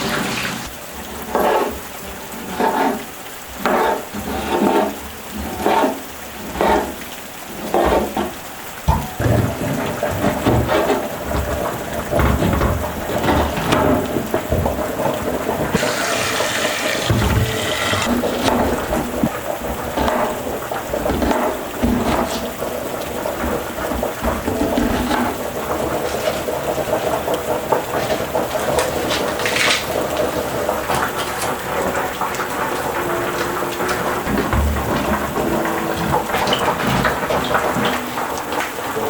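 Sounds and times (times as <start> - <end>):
rush of water: 0.0 - 39.0
steady rain falling: 0.0 - 39.0
small knocks: 6.6 - 26.2.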